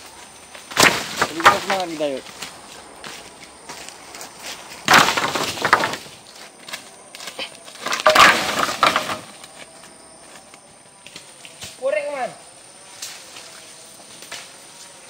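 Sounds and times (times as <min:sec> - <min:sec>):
wood cracking and splintering: 0:00.7 - 0:02.1, 0:04.8 - 0:06.2, 0:07.7 - 0:09.5.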